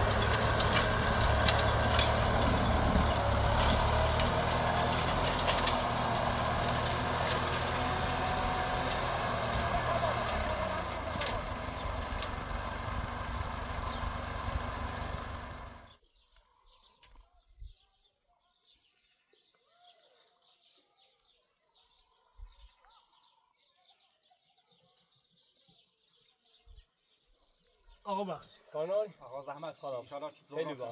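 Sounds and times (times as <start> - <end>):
large engine running: 0.0 - 15.9
faint bird chirps: 15.9 - 29.3.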